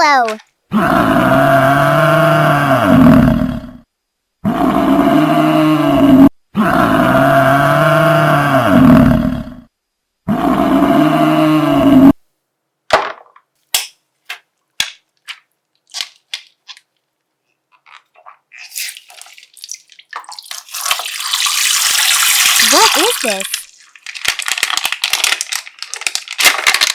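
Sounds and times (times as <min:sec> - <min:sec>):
crackling and squelching: 0:13.6 - 0:21.2, 0:22.4 - 0:26.9.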